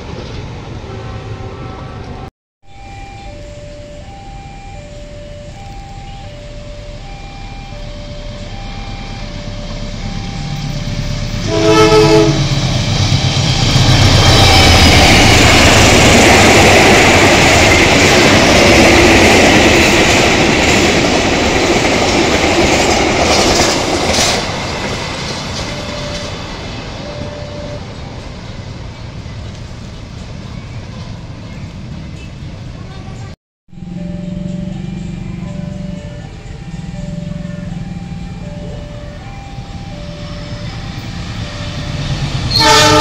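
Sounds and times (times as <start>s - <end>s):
two-tone crossing alarm beeping: 2.6s - 28.6s, 33.7s - 43.0s
locomotive horn blast: 9.9s - 16.5s, 41.5s - 43.0s
wheels on rails: 12.3s - 32.3s
locomotive engine rumble: 23.8s - 43.0s.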